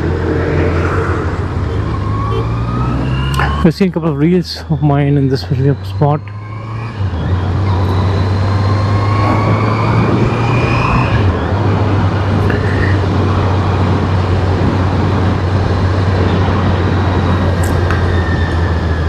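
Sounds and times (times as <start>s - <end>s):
motorcycle engine cruising: 0.0s - 19.0s
wind noise: 6.7s - 19.0s.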